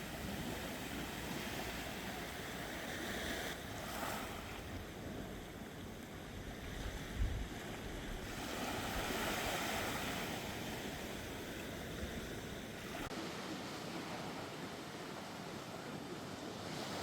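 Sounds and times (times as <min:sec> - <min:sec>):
sea waves washing in: 0:00.0 - 0:05.7, 0:06.3 - 0:17.0
wind on microphone: 0:06.4 - 0:13.1.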